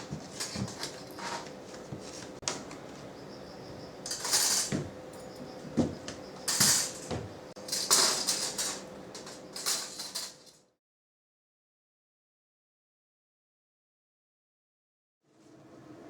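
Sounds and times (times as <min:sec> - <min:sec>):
clattering and scraping bursts: 0:00.0 - 0:02.4, 0:04.1 - 0:10.5.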